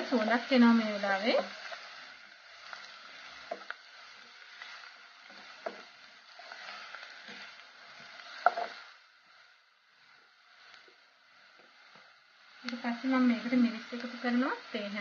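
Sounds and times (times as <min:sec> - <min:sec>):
onions sizzling in hot oil: 0:00.0 - 0:15.0
wooden spatula tapping a pan: 0:03.4 - 0:03.8, 0:05.3 - 0:06.0, 0:07.2 - 0:08.8.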